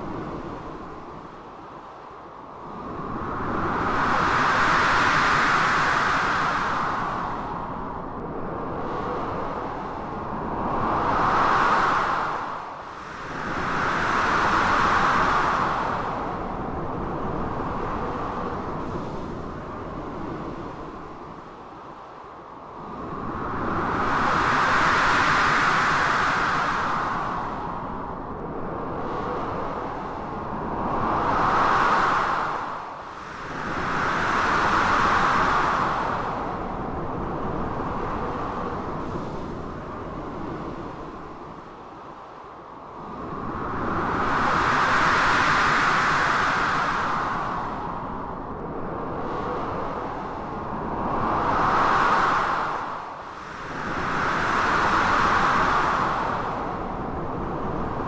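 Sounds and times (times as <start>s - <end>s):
blizzard wind gusting: 22.8s - 42.1s, 42.8s - 58.0s.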